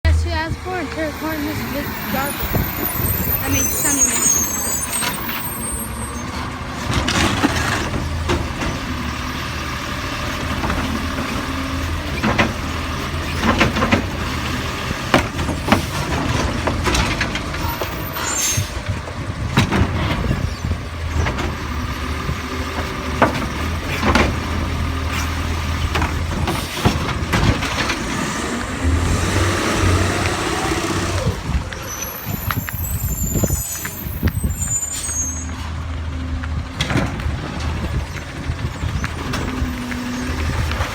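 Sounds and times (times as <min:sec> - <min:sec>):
garbage truck running: 0:00.0 - 0:40.9
sharp clanks and bangs: 0:10.2 - 0:22.0, 0:22.6 - 0:30.2.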